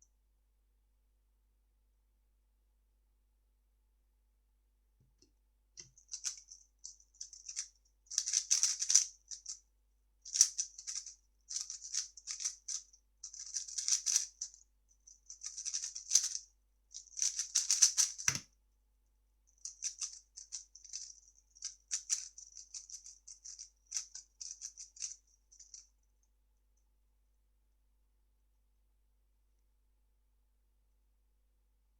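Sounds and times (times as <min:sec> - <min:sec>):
puzzle cube clicking turns: 0:07.3 - 0:09.1, 0:17.2 - 0:18.4.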